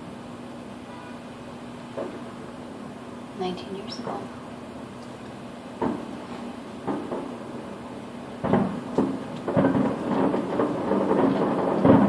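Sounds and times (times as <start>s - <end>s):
distant fireworks booms: 0.8s - 2.8s, 5.6s - 12.0s
rumbling crackle: 4.9s - 12.0s.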